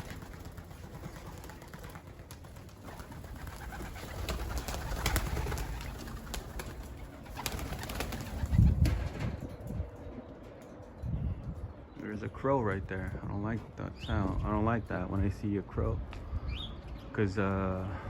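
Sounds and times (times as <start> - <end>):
pigeons cooing: 0.0 - 9.4.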